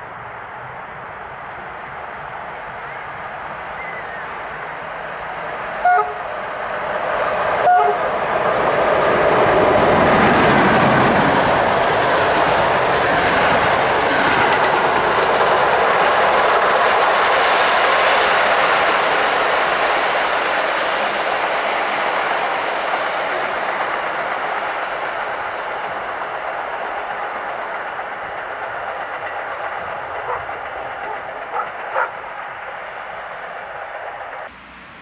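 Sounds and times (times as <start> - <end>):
train passing rush: 0.0 - 35.0
train horn blasts: 5.7 - 6.6, 7.6 - 8.2
wheels clattering over rail joints: 22.5 - 34.5.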